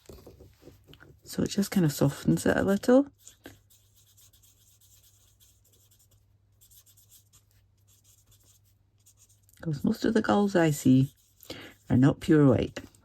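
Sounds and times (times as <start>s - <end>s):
marker scratching on cardstock: 3.1s - 12.9s.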